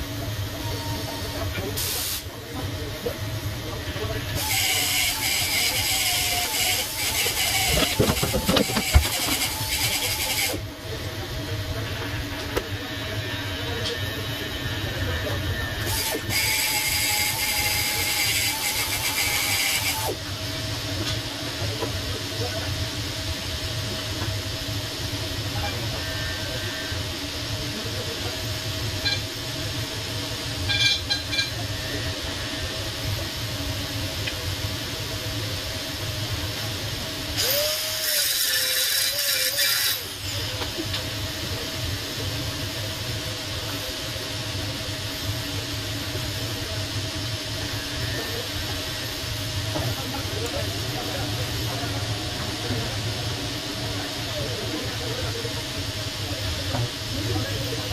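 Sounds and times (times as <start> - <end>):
welding machine hum: 4.4 - 10.8, 15.9 - 20.4, 37.3 - 41.6.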